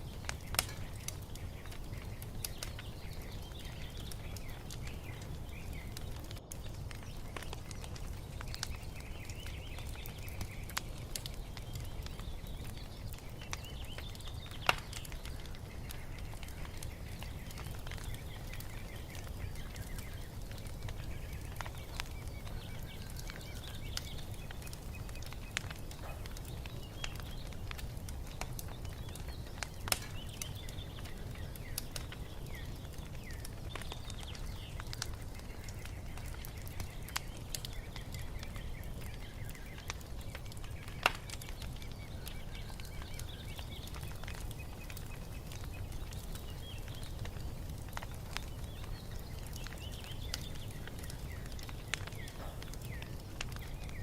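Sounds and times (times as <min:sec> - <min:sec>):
songbirds chirping: 0:00.0 - 0:54.0
wood fire crackling: 0:00.0 - 0:54.0.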